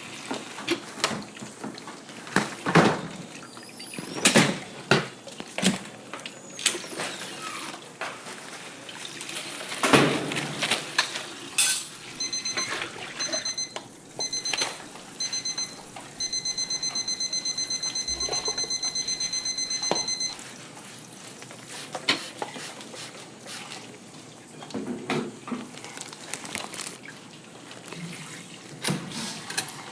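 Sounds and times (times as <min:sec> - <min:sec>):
electronic alarm beeping: 0:12.2 - 0:20.4.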